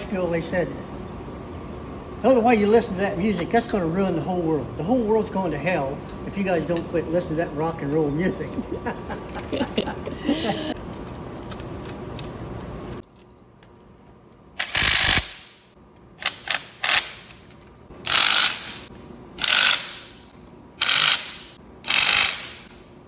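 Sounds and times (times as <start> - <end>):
ratchet clicking: 14.6 - 15.6, 18.0 - 22.8.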